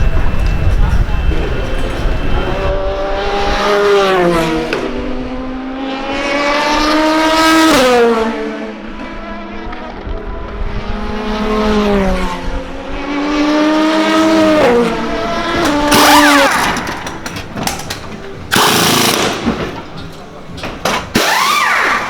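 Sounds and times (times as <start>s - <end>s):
racing car engines accelerating: 0.0s - 22.0s
loud rushing burst: 13.7s - 17.8s, 18.5s - 20.0s.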